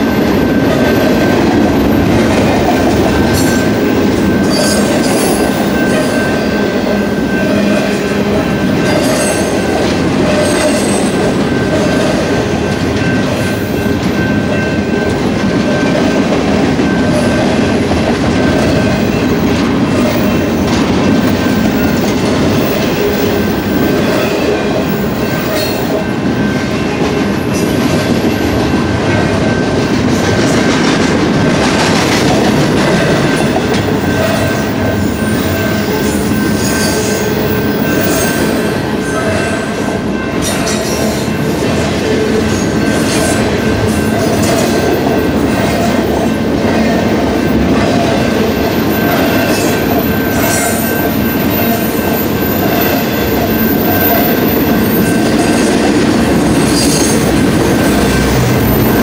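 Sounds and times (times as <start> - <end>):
high-pitched ring: 0.0 - 17.8, 32.9 - 59.0
freight train wheels rumbling on rail: 0.0 - 59.0.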